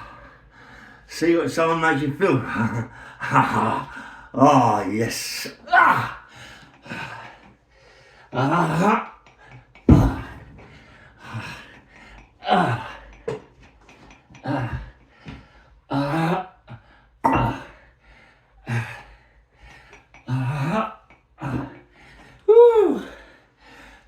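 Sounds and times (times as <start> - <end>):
man grunting with effort: 5.6 - 6.2, 8.4 - 9.0, 12.4 - 13.0, 14.4 - 14.8, 17.3 - 17.7, 20.3 - 21.8, 22.5 - 23.2.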